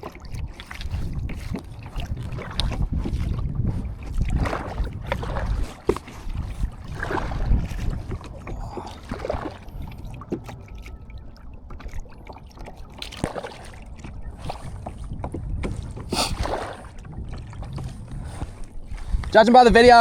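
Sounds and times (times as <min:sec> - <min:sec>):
water splashes: 0:00.0 - 0:20.0
wind rumble on microphone: 0:00.0 - 0:20.0.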